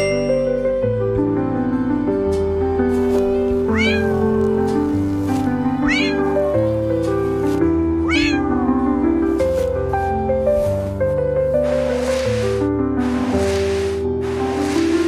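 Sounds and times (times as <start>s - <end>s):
background music: 0.0s - 15.0s
cat meowing: 3.6s - 4.4s, 5.8s - 6.8s, 8.0s - 8.7s.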